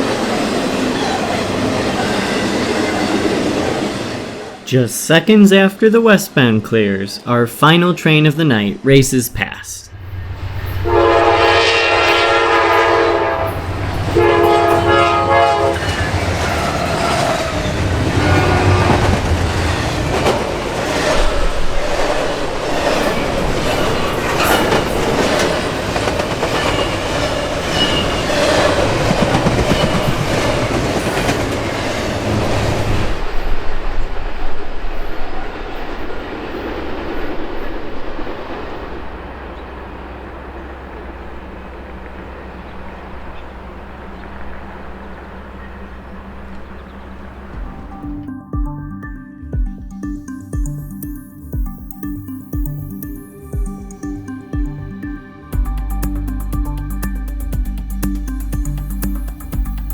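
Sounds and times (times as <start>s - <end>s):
train wheel clatter and rumble: 10.5s - 47.8s
locomotive horn blasts: 10.8s - 16.2s, 18.0s - 19.2s.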